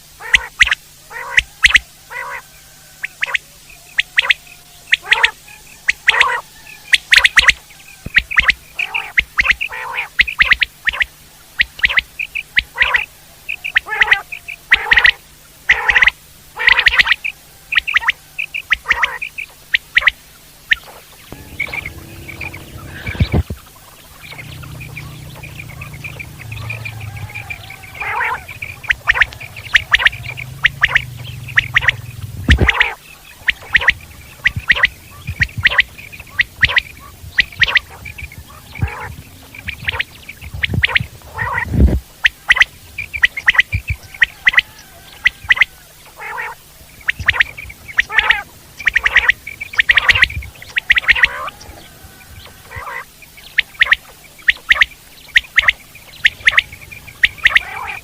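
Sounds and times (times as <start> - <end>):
quail calling: 0.1 - 58.0
low thumps: 21.3 - 41.2.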